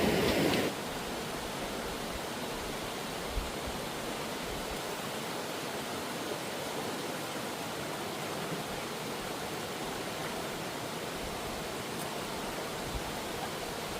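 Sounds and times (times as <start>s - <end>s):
flowing stream water: 0.0s - 13.9s.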